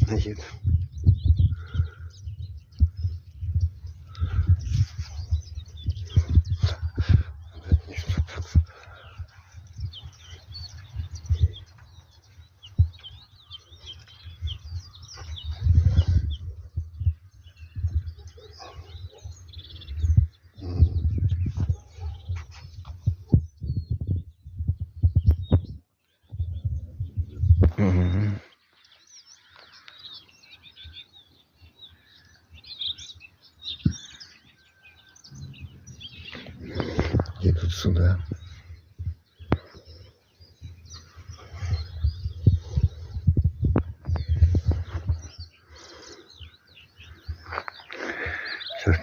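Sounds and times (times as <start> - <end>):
small birds chirping: 0.0 - 49.0
low thumps on microphone: 0.6 - 12.0, 12.7 - 13.3, 14.2 - 28.1, 33.8 - 34.2, 35.2 - 45.5.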